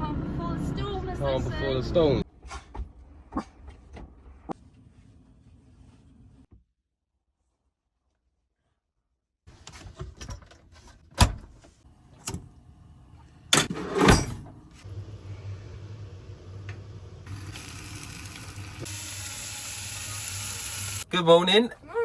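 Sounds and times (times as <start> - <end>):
van doors and latches clunking: 10.1 - 11.6
van engine starting and running: 11.2 - 18.9.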